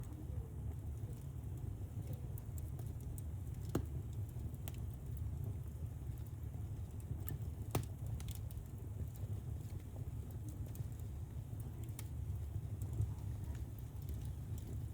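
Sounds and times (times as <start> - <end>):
fire crackling and popping: 0.0 - 14.9
fire rumbling: 0.0 - 14.9.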